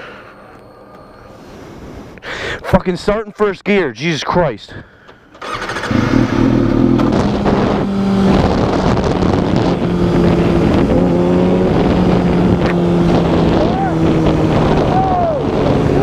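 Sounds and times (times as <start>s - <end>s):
motorcycle engine pulling away: 5.4s - 16.0s
wind rush on microphone: 5.8s - 16.0s.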